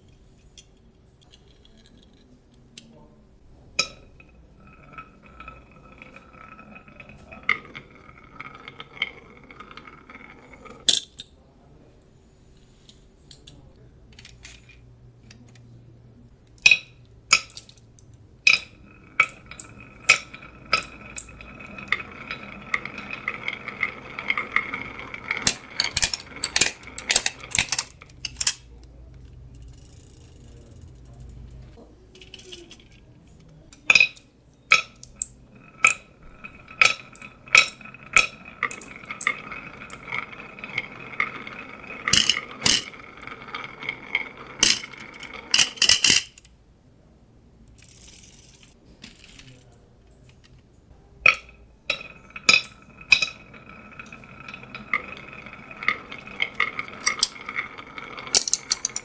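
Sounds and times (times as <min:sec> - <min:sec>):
rolling marbles ringing hum: 0:03.4 - 0:11.0, 0:16.6 - 0:28.7, 0:29.4 - 0:46.5, 0:50.9 - 0:59.0
marbles clacking on a track: 0:03.7 - 0:11.2, 0:16.6 - 0:46.5, 0:51.2 - 0:59.0.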